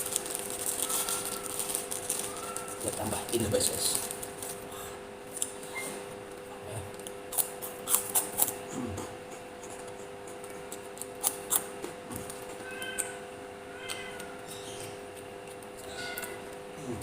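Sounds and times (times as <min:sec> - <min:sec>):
electrical hum: 0:00.0 - 0:17.0
cat meowing faintly: 0:02.2 - 0:03.2, 0:12.6 - 0:14.5
chewing crunches: 0:06.9 - 0:13.2.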